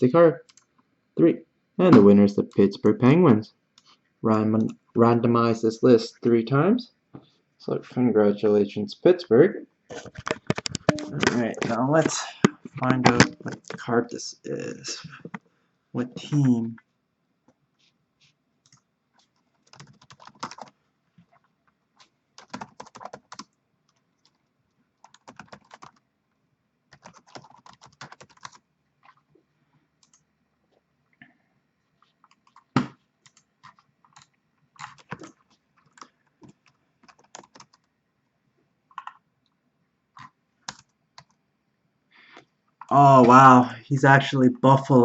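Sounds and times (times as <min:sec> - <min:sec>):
computer keyboard typing: 0:00.4 - 0:00.7, 0:18.6 - 0:20.8, 0:22.0 - 0:24.4, 0:25.0 - 0:26.0, 0:26.9 - 0:29.2, 0:30.0 - 0:30.2, 0:32.0 - 0:37.9, 0:38.9 - 0:39.2, 0:40.2 - 0:41.4.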